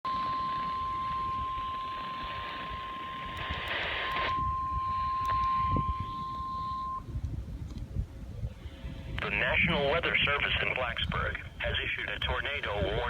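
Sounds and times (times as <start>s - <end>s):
alarm tone: 0.0s - 7.1s
radio static hiss: 0.5s - 4.4s, 9.0s - 13.0s.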